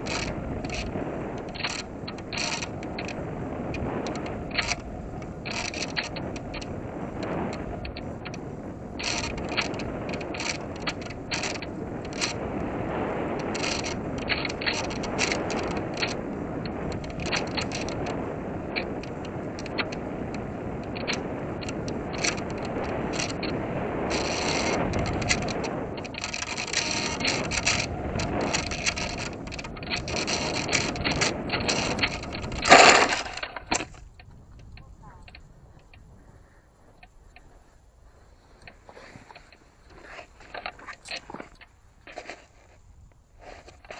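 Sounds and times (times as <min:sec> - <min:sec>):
short mechanical clicks: 0:00.0 - 0:06.7, 0:07.5 - 0:12.4, 0:18.8 - 0:36.0.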